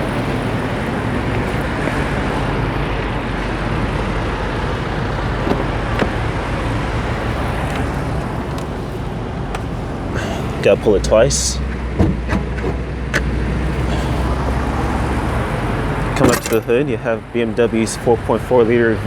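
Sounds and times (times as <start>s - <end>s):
constant low hum: 0.0s - 19.0s
low vehicle rumble: 0.0s - 19.0s.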